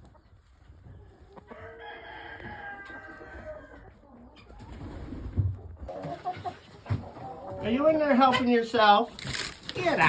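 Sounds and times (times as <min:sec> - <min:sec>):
rooster crowing: 0:01.5 - 0:03.7.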